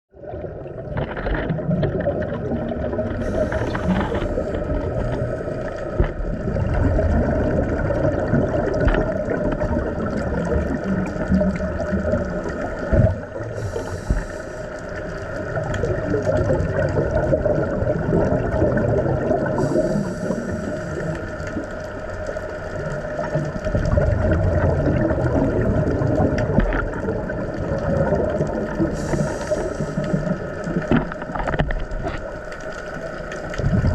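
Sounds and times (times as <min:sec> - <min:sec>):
water noise: 0:00.1 - 0:33.9
boat engine droning: 0:02.5 - 0:06.9, 0:11.8 - 0:15.6, 0:19.6 - 0:23.6, 0:28.3 - 0:33.4
short hiss: 0:03.2 - 0:04.6, 0:29.0 - 0:30.2.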